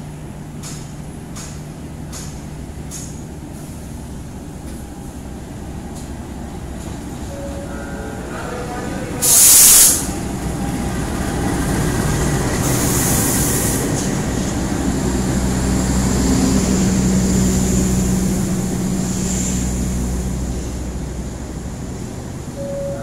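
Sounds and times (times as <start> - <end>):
locomotive engine droning: 0.0 - 23.0
train rolling: 0.0 - 23.0
air hiss: 9.2 - 10.2, 12.6 - 14.1.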